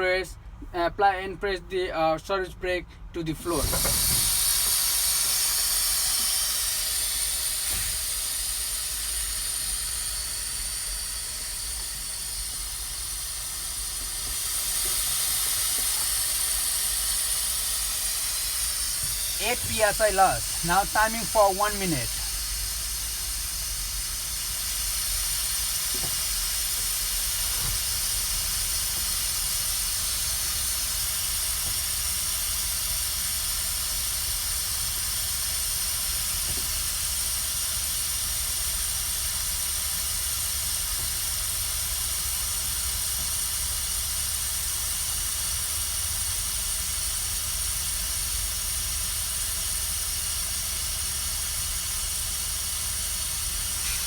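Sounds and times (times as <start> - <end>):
steady hiss: 3.6 - 33.8.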